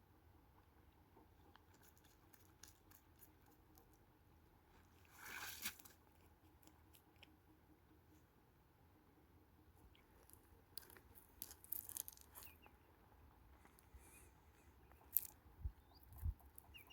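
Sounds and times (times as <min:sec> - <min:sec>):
faint clicks and crunches: 0:01.4 - 0:04.1, 0:09.8 - 0:12.7, 0:14.9 - 0:16.9.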